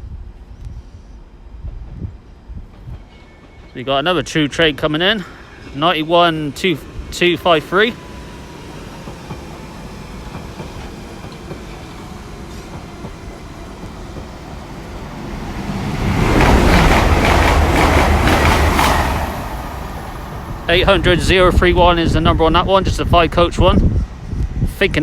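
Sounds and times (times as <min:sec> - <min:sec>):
train passing: 0:01.0 - 0:25.0
wheels clattering on rail joints: 0:09.1 - 0:21.6.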